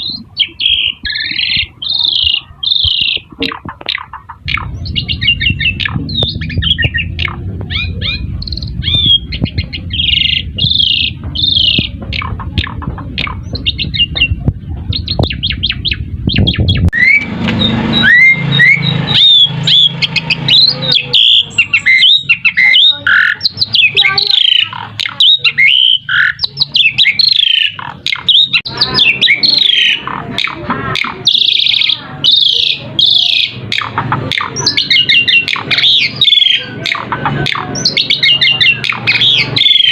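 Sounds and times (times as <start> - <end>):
starling singing: 0.0 - 39.9
low rumble: 4.0 - 20.8.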